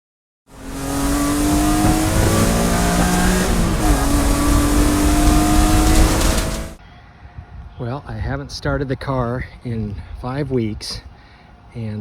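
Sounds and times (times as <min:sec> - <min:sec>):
race car engine running: 0:00.5 - 0:06.8.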